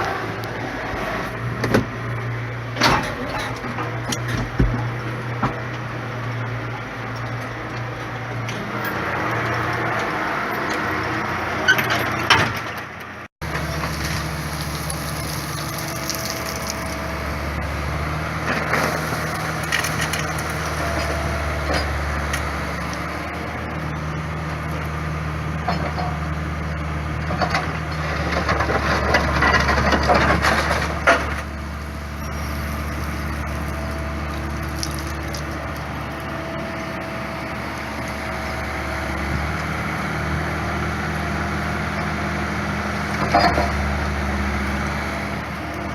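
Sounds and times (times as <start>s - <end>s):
digger diesel engine running: 0.0s - 45.9s
concrete cracking and crunching: 13.4s - 23.1s, 32.2s - 36.3s.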